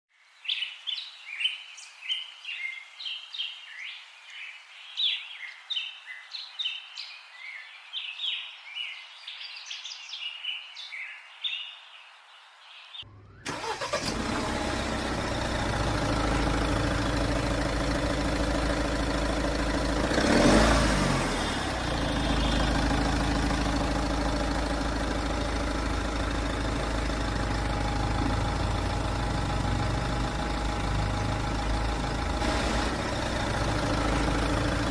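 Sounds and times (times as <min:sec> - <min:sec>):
birds chirping: 0:00.1 - 0:34.9
engine running: 0:13.1 - 0:34.9.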